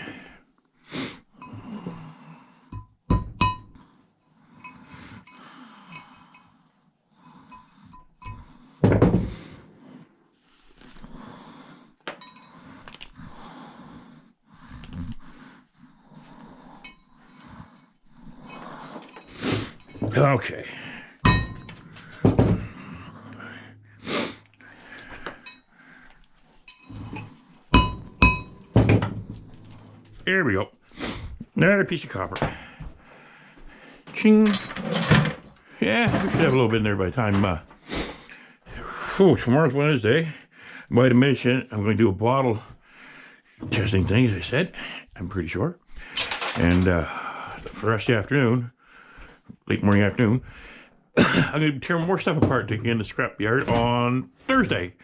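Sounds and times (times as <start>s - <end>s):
metal parts clicking and clinking: 21.3s - 22.3s, 26.6s - 30.1s, 46.2s - 46.8s
scrap metal parts clinking: 21.3s - 22.3s, 46.2s - 46.8s.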